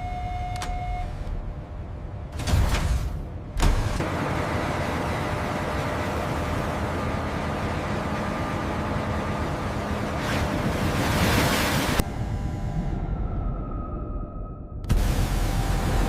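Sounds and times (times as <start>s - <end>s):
wind: 0.0s - 16.0s
sea surf: 10.1s - 12.0s
dull low rumble: 12.0s - 16.0s.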